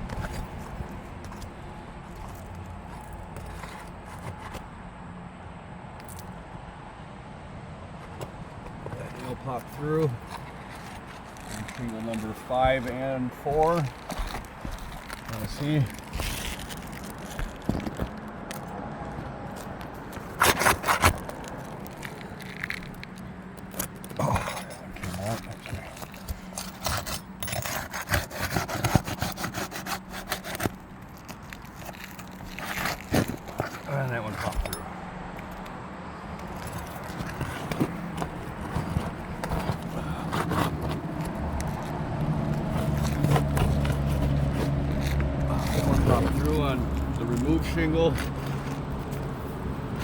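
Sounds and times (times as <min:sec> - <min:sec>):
roof shingle scraping and crackling: 0:00.0 - 0:04.8, 0:08.0 - 0:50.0
shingle ripping with sharp cracks: 0:09.2 - 0:35.7, 0:36.3 - 0:50.0
low engine hum: 0:30.8 - 0:50.0.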